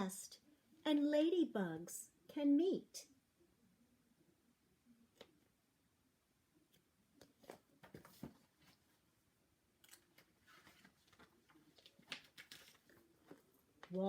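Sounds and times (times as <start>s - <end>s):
paper pages rustling and turning: 6.7s - 9.1s, 9.8s - 14.0s.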